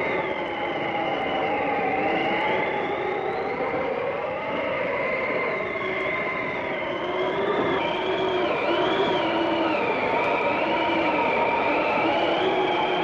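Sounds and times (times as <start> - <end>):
howling blizzard wind: 0.0 - 13.0.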